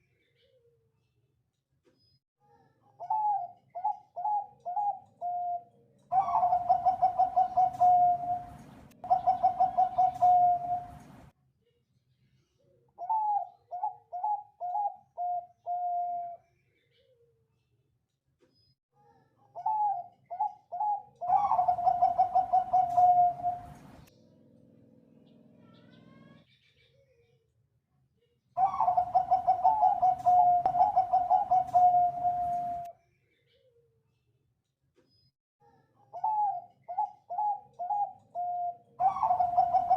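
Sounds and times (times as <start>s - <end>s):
dove cooing: 3.0s - 11.3s, 13.0s - 16.4s, 19.6s - 24.0s, 28.6s - 32.9s, 36.1s - 39.9s.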